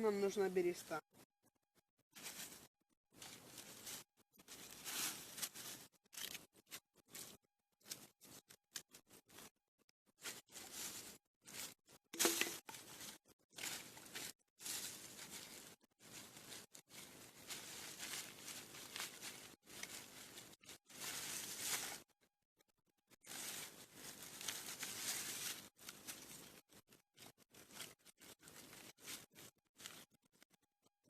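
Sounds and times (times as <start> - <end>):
bark tearing and rustling: 3.2 - 9.5, 13.6 - 22.0.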